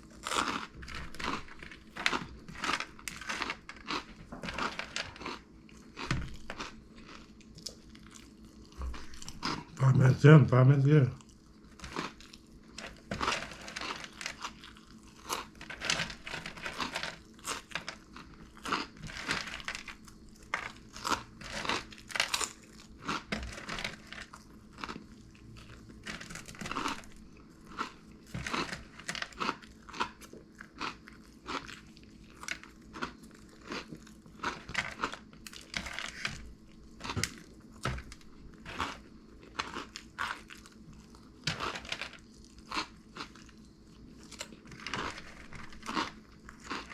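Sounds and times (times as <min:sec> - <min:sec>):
person chewing crunchy snacks: 0:00.0 - 0:46.9.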